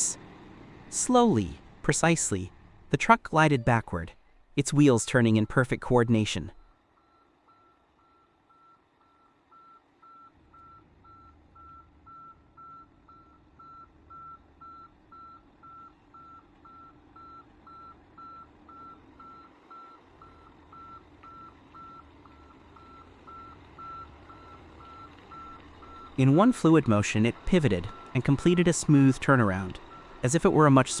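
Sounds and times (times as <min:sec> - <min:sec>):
truck engine rumbling: 0:00.0 - 0:31.0
truck reversing alarm beeping: 0:03.2 - 0:31.0.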